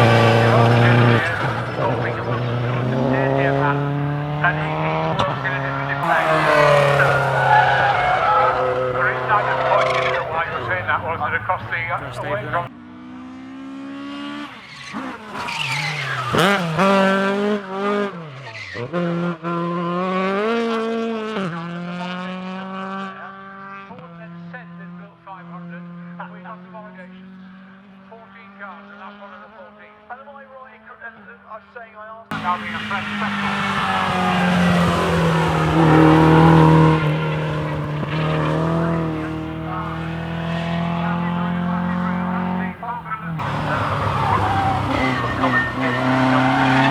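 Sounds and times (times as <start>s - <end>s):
rally car engine revving: 0.0s - 12.7s, 14.0s - 18.0s, 32.3s - 46.9s.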